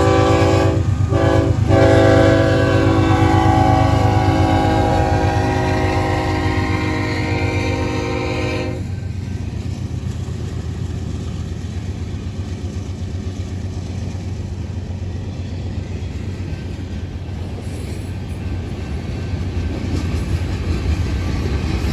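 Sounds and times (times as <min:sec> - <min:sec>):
locomotive horn: 0:00.0 - 0:08.9
freight train rumbling past: 0:00.0 - 0:21.9.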